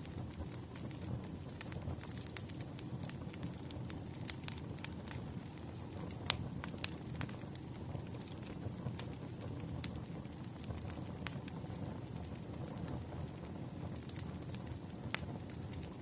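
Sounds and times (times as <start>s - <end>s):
flames rumbling: 0.0s - 16.0s
logs crackling and popping: 0.0s - 16.0s.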